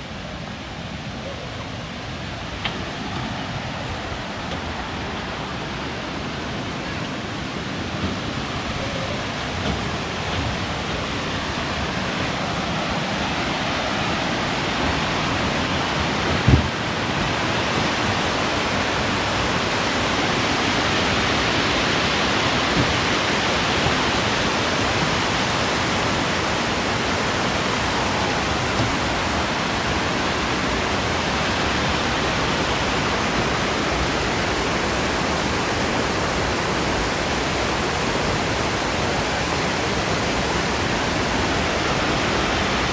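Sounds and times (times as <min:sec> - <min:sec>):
waterfall rushing: 0:00.0 - 0:42.9
low thump: 0:16.4 - 0:16.8.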